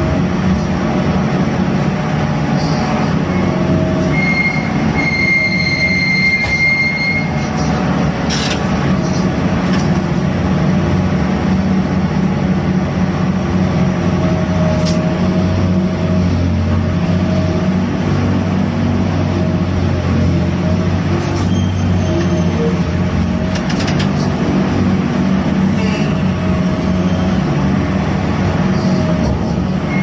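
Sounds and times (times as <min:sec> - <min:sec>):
crane engine and winches droning: 0:00.0 - 0:30.0
faint machinery squeal: 0:02.5 - 0:07.9, 0:21.2 - 0:23.0, 0:25.8 - 0:27.6, 0:28.8 - 0:30.0.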